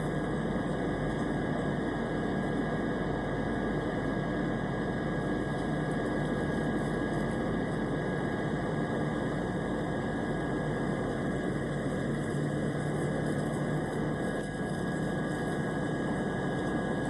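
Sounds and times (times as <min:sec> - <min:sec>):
airplane engine drone: 0:00.0 - 0:17.0.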